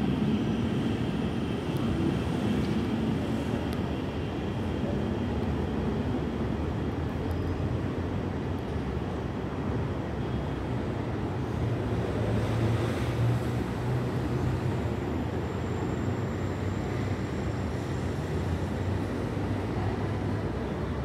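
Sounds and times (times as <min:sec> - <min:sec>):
train low rumble: 0:00.0 - 0:10.0.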